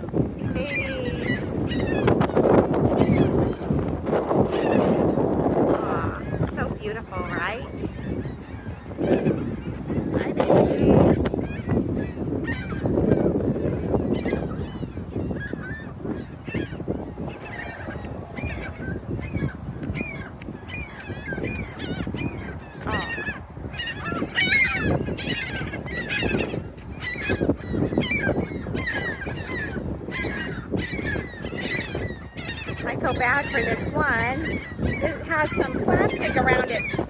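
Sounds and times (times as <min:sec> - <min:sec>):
gulls calling: 0:00.0 - 0:37.0.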